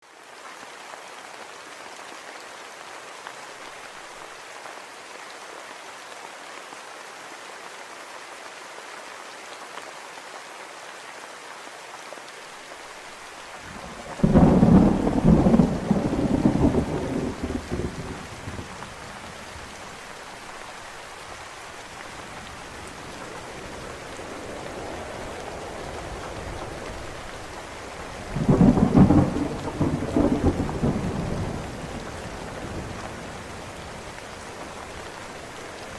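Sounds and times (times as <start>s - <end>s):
steady rain falling: 0.0s - 35.9s
thunder rolling: 13.8s - 19.3s, 23.0s - 33.0s.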